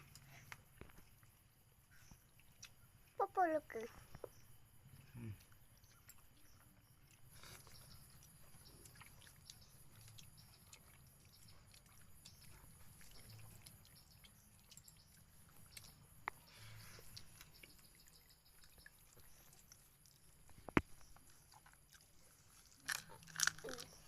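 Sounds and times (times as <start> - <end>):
person chewing: 7.0 - 14.0, 18.8 - 24.0.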